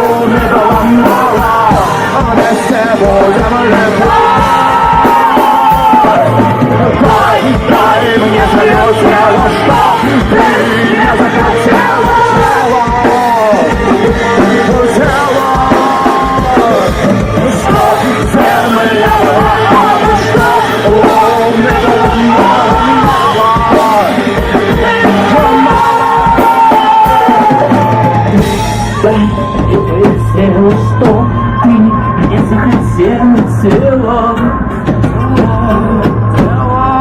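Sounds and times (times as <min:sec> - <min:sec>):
drum kit: 0:00.0 - 0:37.0
live rock band: 0:00.0 - 0:37.0
person singing: 0:00.0 - 0:37.0.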